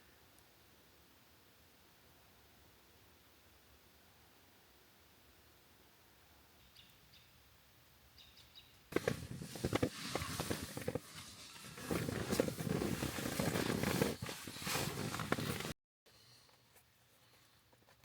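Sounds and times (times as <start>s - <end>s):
close rustling and handling: 8.9s - 15.8s.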